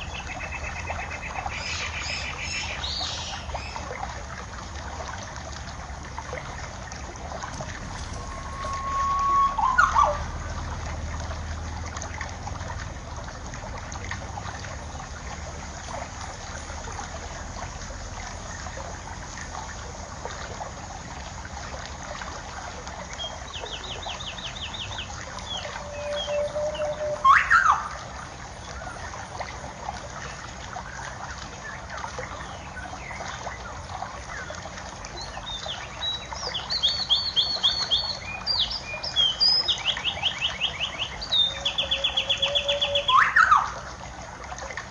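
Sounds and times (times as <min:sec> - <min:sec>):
water trickling: 0:00.0 - 0:44.9
bird sweeping call: 0:07.6 - 0:10.6, 0:23.6 - 0:28.0, 0:36.5 - 0:43.8
small birds chirping: 0:35.2 - 0:43.7.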